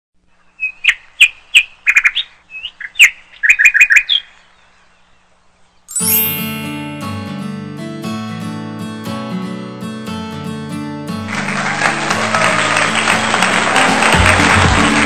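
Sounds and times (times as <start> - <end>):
birds chirping: 0.3 - 6.7
strummed acoustic guitar music: 6.5 - 11.3.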